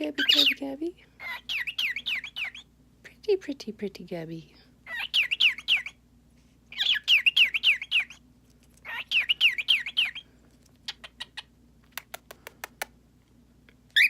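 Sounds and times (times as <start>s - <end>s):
cockatiel whistling chatter: 8.8s - 10.2s.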